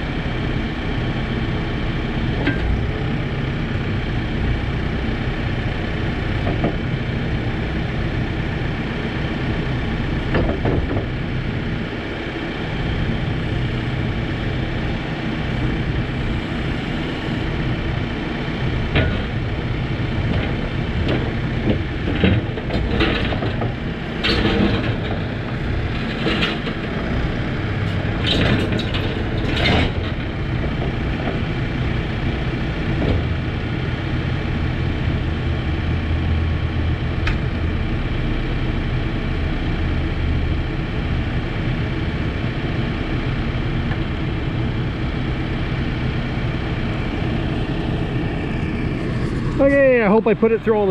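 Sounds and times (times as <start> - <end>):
diesel engine running: 0.0 - 50.9
metal clanks and knocks: 18.9 - 19.4, 20.2 - 27.1, 27.8 - 31.4.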